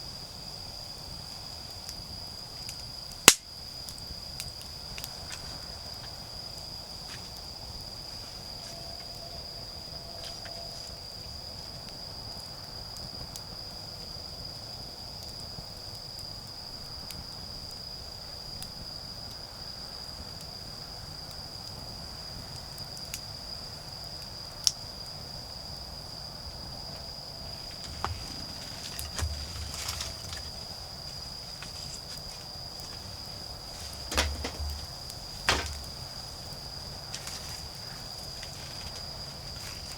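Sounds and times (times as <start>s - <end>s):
crickets chirring: 0.0s - 39.9s
sharp crackles: 27.5s - 39.9s
rustling and knocking: 27.6s - 36.4s.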